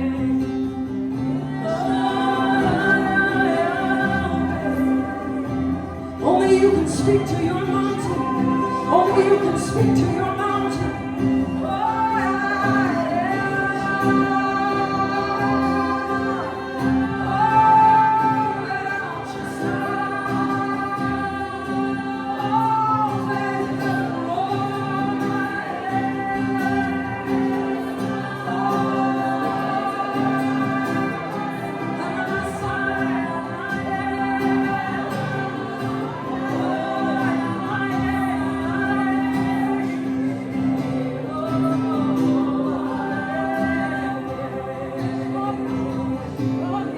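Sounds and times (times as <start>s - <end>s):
congregation singing freely: 0.0s - 46.9s.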